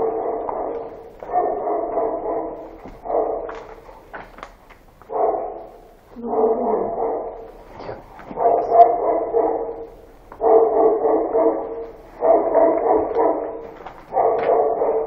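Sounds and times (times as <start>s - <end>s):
dog barking: 0.0s - 4.2s, 5.0s - 15.0s.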